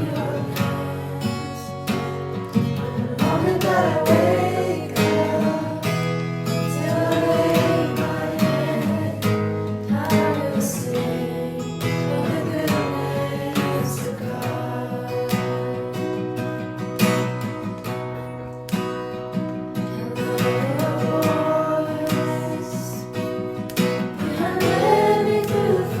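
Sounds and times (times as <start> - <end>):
person singing: 0.0 - 1.9, 2.6 - 5.9, 6.8 - 16.2, 20.0 - 23.2, 24.2 - 26.0
acoustic guitar strumming: 0.0 - 26.0.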